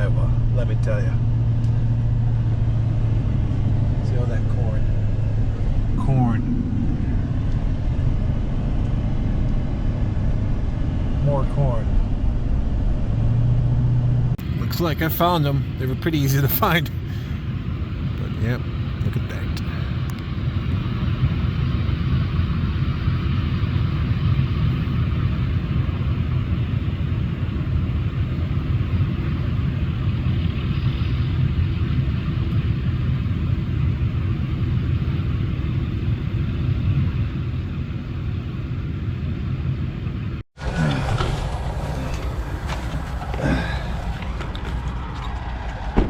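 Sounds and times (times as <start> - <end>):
vehicle engine and road noise: 0.0 - 46.0
harsh machinery sound: 14.4 - 46.0.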